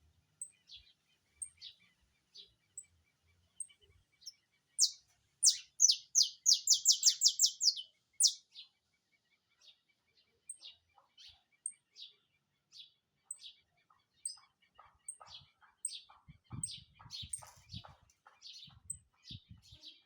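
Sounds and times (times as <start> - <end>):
finch singing: 4.8 - 8.4, 15.0 - 20.0.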